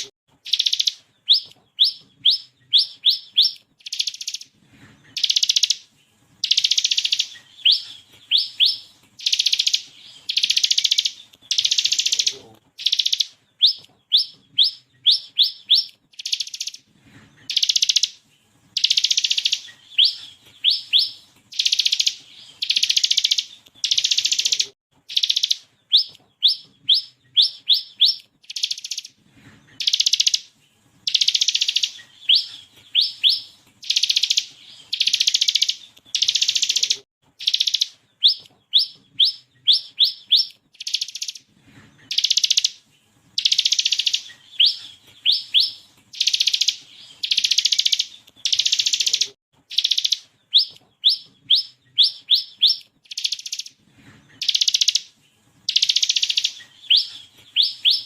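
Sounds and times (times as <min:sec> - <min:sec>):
bird singing buzzing rattles: 0:00.4 - 0:04.5, 0:06.4 - 0:16.8, 0:18.8 - 0:29.1, 0:31.0 - 0:41.4, 0:43.4 - 0:53.7, 0:54.4 - 0:58.0
bird whistled notes: 0:43.4 - 0:53.7, 0:55.7 - 0:58.0.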